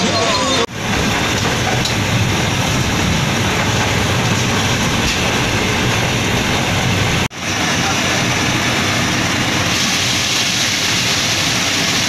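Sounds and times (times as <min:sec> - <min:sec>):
moving train running noise: 0:00.0 - 0:12.0.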